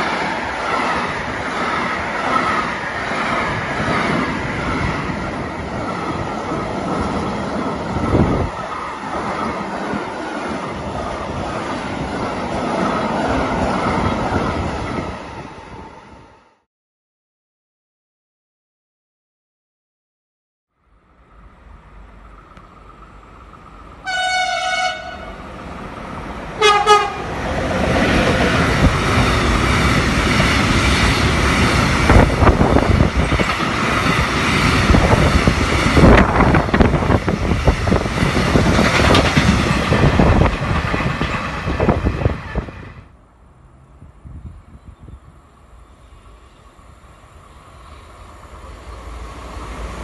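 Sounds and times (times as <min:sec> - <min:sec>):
train horn: 0:24.0 - 0:25.4, 0:26.6 - 0:27.3
train wheels clattering on rails: 0:26.7 - 0:42.8.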